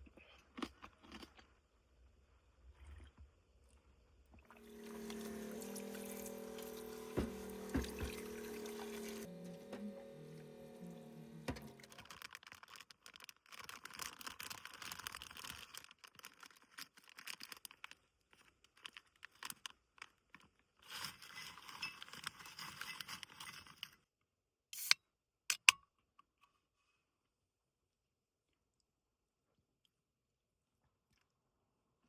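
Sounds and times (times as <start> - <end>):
rustling and crinkling: 11.6 - 24.0.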